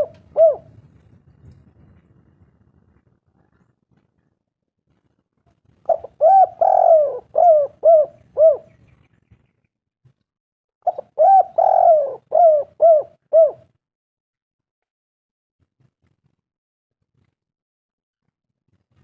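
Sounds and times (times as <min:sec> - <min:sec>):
dove cooing: 0:00.0 - 0:00.8, 0:05.8 - 0:08.9, 0:10.9 - 0:13.7.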